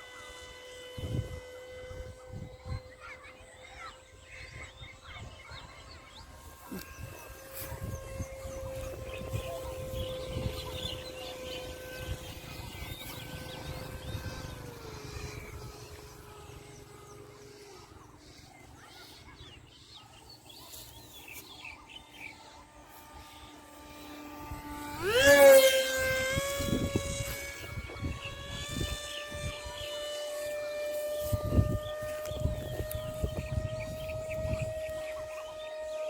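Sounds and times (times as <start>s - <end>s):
model plane motor whining: 0.0s - 36.0s
wind rumbling on microphone: 0.9s - 3.0s, 6.2s - 17.3s, 24.4s - 30.2s, 31.0s - 35.3s.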